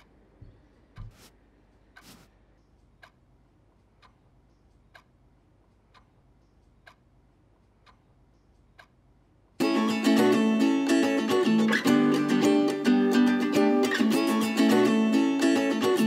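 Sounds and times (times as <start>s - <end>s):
clock ticking: 0.0s - 16.0s
acoustic guitar music: 9.6s - 16.0s.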